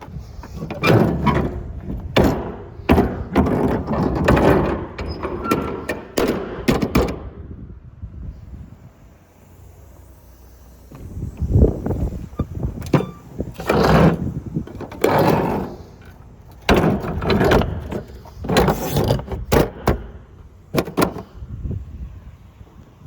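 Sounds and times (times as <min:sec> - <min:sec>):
knocks and clunks: 0:00.0 - 0:07.4, 0:10.9 - 0:21.4.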